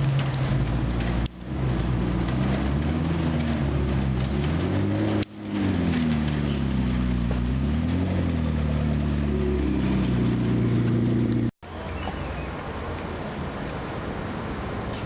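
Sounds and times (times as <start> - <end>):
car engine running at low revs: 0.0 - 11.5.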